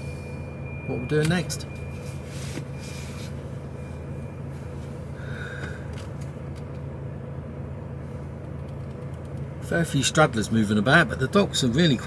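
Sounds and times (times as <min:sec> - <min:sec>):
brief high beep: 0:00.0 - 0:02.9
diesel engine drone: 0:00.0 - 0:12.0.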